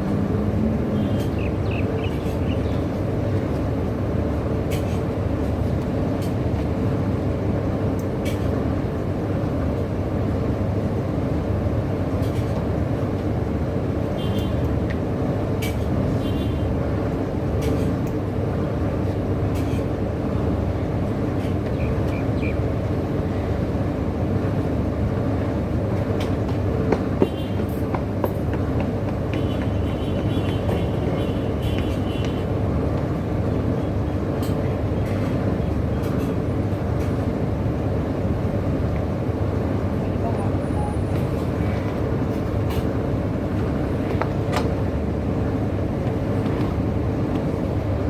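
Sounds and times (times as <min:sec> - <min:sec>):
car engine and road noise: 0:00.0 - 0:04.5.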